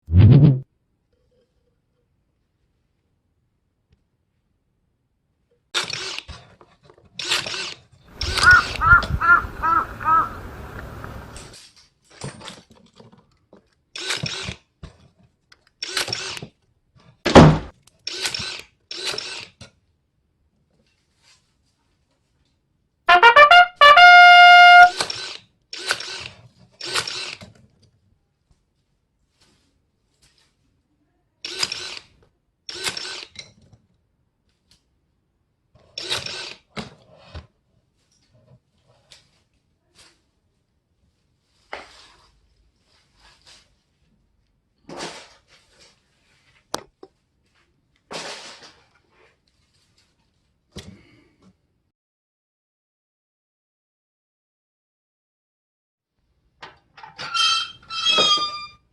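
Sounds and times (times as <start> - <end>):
trumpet fanfare: 23.1 - 25.0.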